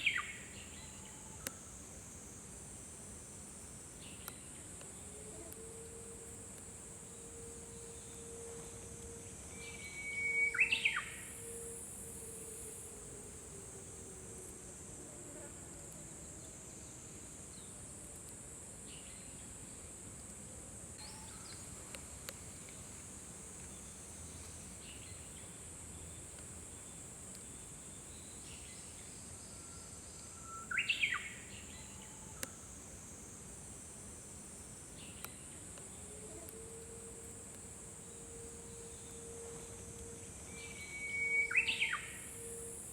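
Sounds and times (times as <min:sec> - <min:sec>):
bird singing whistled song: 0:00.0 - 0:00.9, 0:09.5 - 0:11.6, 0:30.4 - 0:31.9, 0:40.5 - 0:42.7
steady high hiss: 0:00.0 - 0:42.9.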